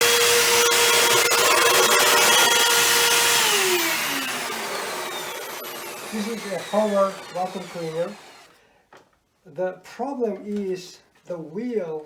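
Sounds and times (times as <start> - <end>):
vacuum cleaner motor whine: 0.0 - 8.5.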